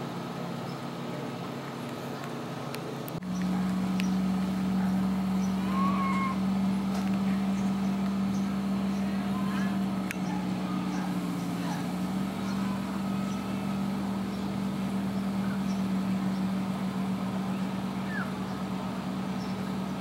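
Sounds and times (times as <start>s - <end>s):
low engine hum: 0.0s - 20.0s
faint bird calls: 5.4s - 6.5s, 17.5s - 18.7s.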